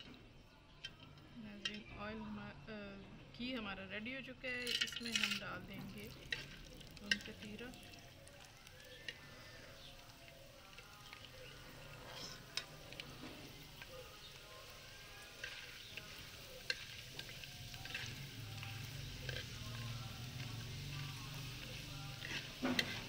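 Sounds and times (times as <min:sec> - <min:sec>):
ghee sizzling: 0:04.3 - 0:23.0
spoon stirring: 0:04.6 - 0:23.0.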